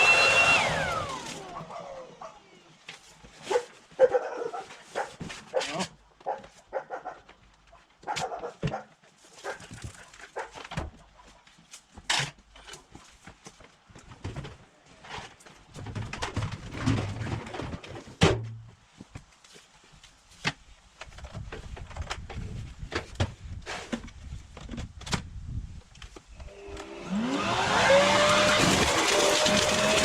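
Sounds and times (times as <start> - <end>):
garden blower motor whining: 0.0 - 2.2, 26.4 - 30.0.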